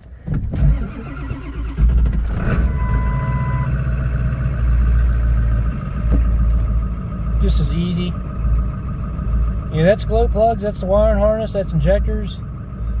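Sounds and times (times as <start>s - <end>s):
diesel engine cranking and idling: 0.0s - 13.0s
short electronic beep: 2.5s - 3.8s.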